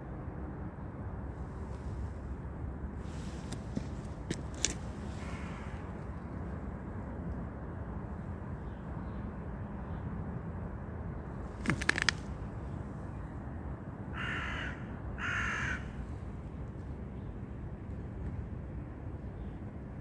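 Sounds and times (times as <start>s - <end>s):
rattle of sharp clicks: 11.6s - 12.3s
crow cawing: 14.1s - 16.0s.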